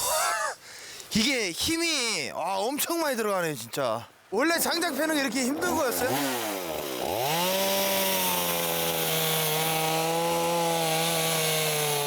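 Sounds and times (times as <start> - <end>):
chainsaw cutting wood: 5.6 - 12.0.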